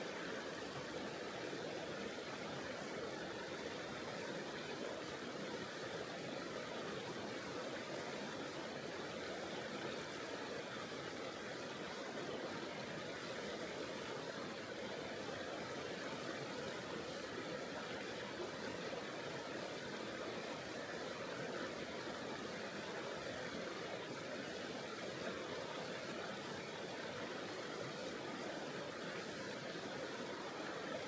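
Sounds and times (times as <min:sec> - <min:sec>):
river water rushing: 0:21.0 - 0:31.0.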